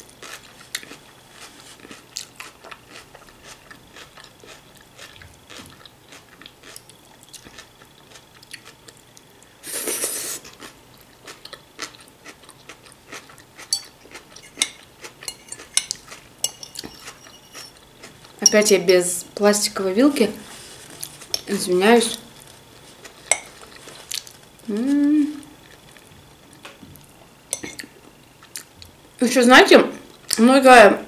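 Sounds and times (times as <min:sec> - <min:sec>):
chewing crunchy raw vegetables: 0:00.0 - 0:09.3, 0:10.4 - 0:18.4, 0:22.2 - 0:25.0.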